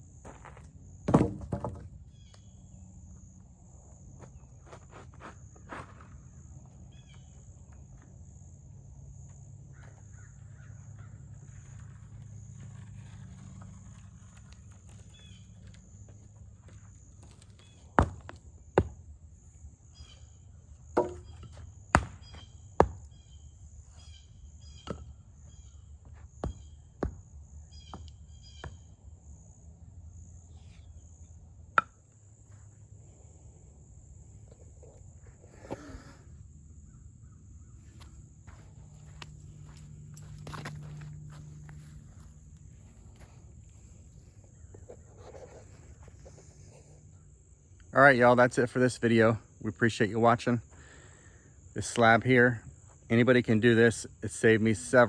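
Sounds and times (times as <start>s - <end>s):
sharp knocks: 21.0s - 21.4s.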